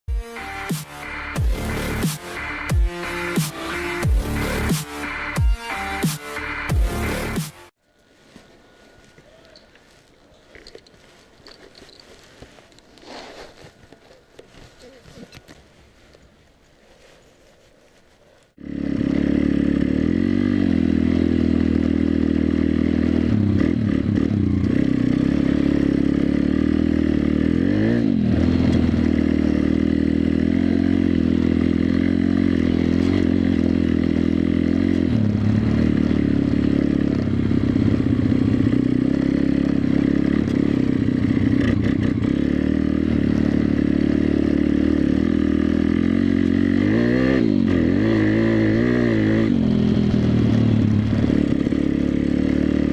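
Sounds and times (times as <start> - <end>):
motorcycle engine revving: 0.1 - 7.8, 18.6 - 52.9.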